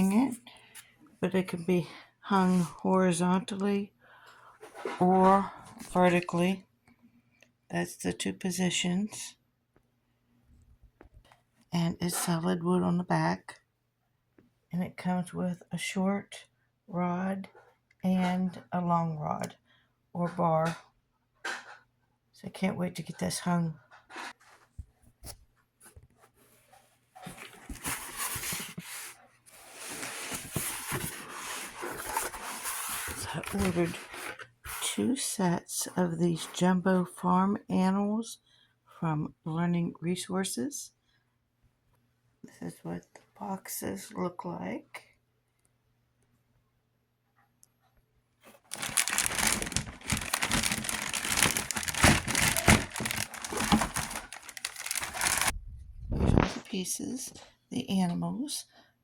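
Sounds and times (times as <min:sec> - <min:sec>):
objects being handled rustling: 0:24.1 - 0:35.0, 0:48.4 - 0:55.6
packaging crinkling and tearing: 0:48.7 - 0:55.5.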